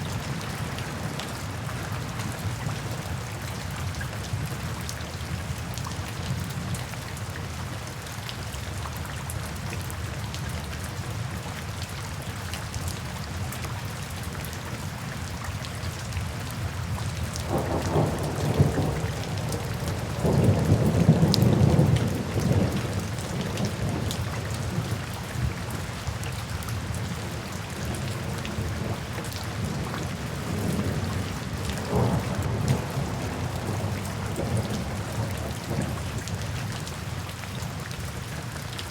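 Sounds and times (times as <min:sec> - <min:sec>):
steady rain falling: 0:00.0 - 0:38.9
low thunder rumbling: 0:17.5 - 0:24.8, 0:28.0 - 0:36.4.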